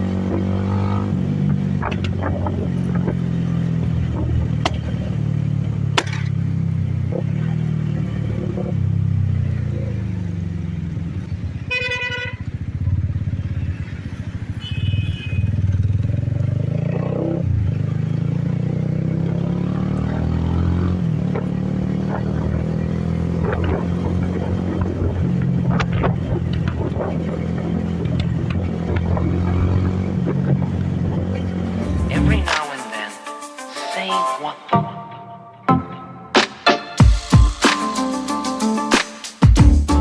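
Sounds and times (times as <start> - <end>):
motorcycle engine accelerating: 0.0 - 32.5
sharp engine pops: 4.2 - 5.0, 5.9 - 6.4
vehicle horn: 11.6 - 12.8, 14.5 - 15.8.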